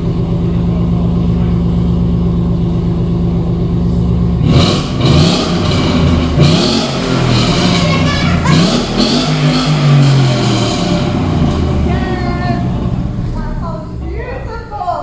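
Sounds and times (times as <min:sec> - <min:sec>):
car engine idling: 0:00.0 - 0:15.0
loud music: 0:06.4 - 0:13.0.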